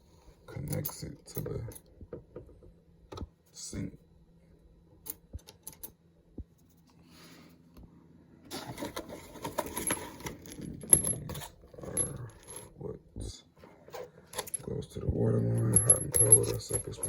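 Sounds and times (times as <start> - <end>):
small metal parts clinking: 9.4 - 12.8, 14.3 - 14.8, 15.5 - 17.0.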